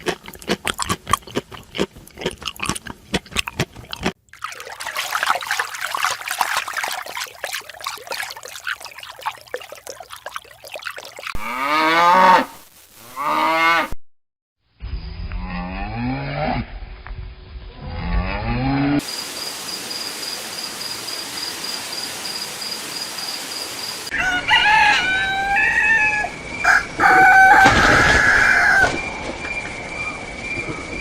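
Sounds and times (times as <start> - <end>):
steady hiss: 19.0 - 24.1
rooster crowing: 24.1 - 29.0.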